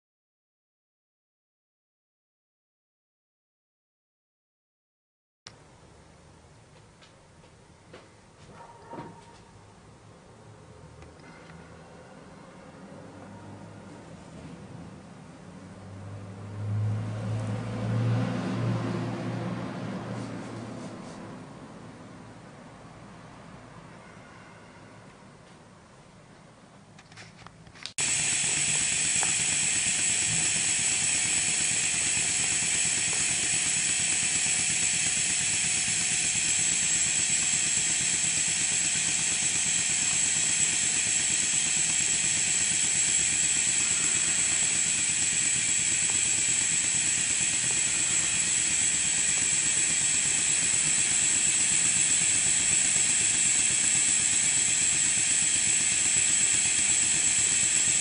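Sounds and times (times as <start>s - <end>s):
air exhaust hissing: 28.0s - 58.0s
fast mechanical clatter: 28.0s - 58.0s.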